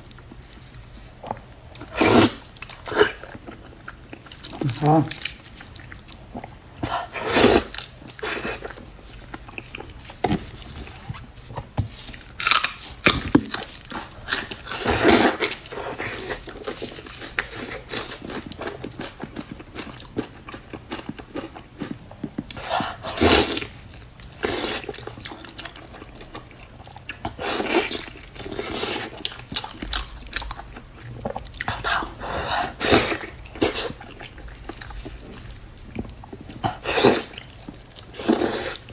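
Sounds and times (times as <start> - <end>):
person chewing meat: 0.0 - 38.9.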